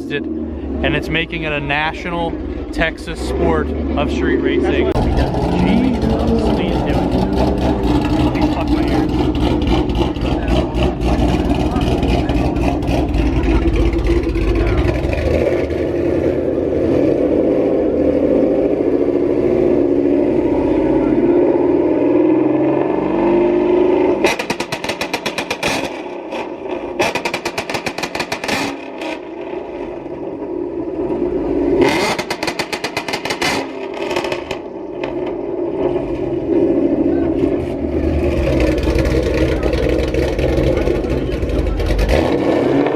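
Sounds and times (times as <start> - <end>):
car engine running: 0.0 - 42.9
rapid rev limiter bangs: 24.1 - 29.2.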